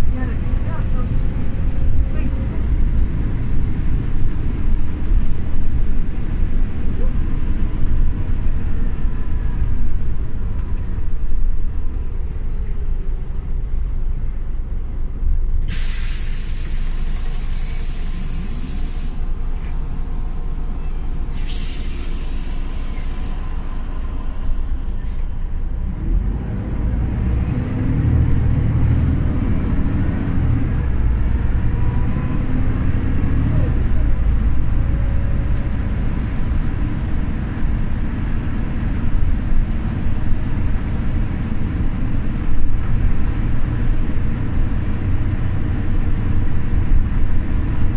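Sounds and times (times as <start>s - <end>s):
bus diesel engine running: 0.0s - 47.9s
compressed air hissing: 15.7s - 19.3s, 21.3s - 23.3s.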